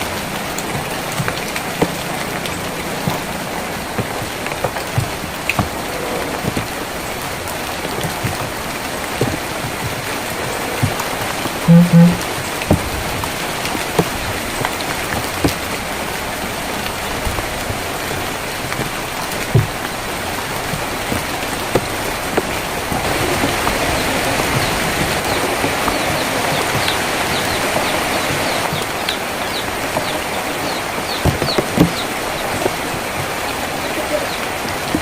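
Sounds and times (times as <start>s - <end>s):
rain on a tin roof: 0.0s - 35.0s
faint bird chirps: 11.7s - 12.2s
drops knocking on metal: 11.7s - 13.0s.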